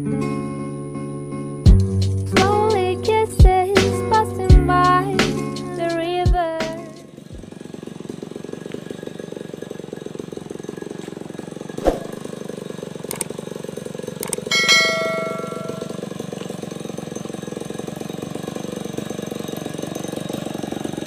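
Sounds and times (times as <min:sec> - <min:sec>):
chainsaw engine idling: 0:02.6 - 0:21.0
sharp click: 0:13.1 - 0:13.3, 0:14.2 - 0:14.5
short ringing tone: 0:14.5 - 0:16.0.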